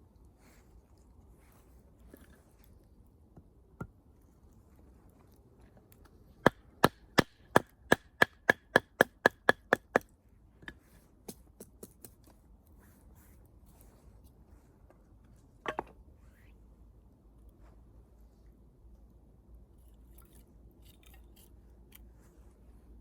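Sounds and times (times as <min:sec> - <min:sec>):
hatchet knocking on firewood: 0:06.5 - 0:12.1.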